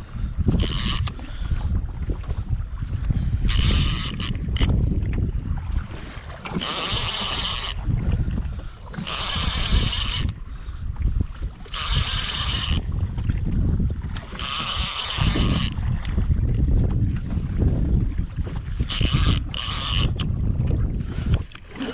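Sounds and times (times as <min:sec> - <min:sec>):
boat noise: 0:00.0 - 0:21.9
wind: 0:00.0 - 0:21.9
fishing reel whirring: 0:00.1 - 0:01.5, 0:03.4 - 0:04.8, 0:06.5 - 0:07.9, 0:08.9 - 0:10.4, 0:11.6 - 0:12.9, 0:14.1 - 0:16.2, 0:18.7 - 0:20.4.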